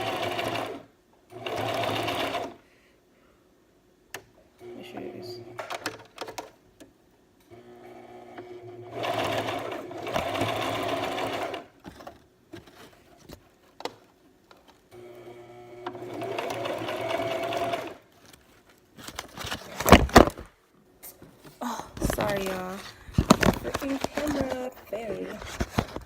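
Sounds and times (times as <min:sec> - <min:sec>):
sewing machine stitching: 0:00.0 - 0:02.6, 0:07.9 - 0:12.2, 0:15.0 - 0:18.1.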